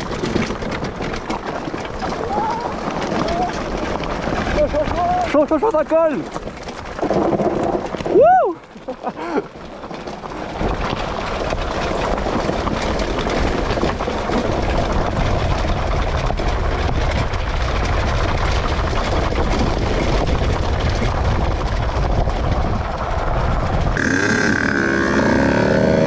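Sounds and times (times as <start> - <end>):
dirt bike engine running: 9.6 - 26.0
rushing wind noise: 10.3 - 26.0.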